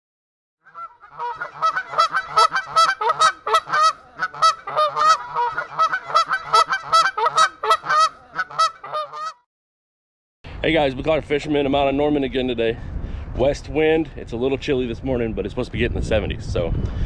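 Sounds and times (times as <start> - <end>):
waterfowl calling: 0.7 - 9.4.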